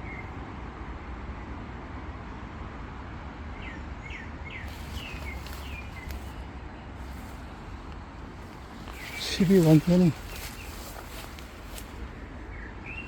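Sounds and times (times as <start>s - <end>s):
small bird chirping: 4.5s - 6.5s, 8.8s - 11.8s
steady low rumble: 4.6s - 12.6s.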